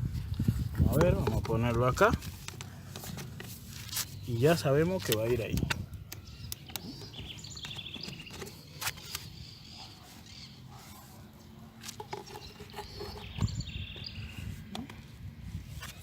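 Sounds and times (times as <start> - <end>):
plastic pipe fittings clicking: 0.9 - 4.0, 4.8 - 9.3
birds chirping: 1.0 - 15.1.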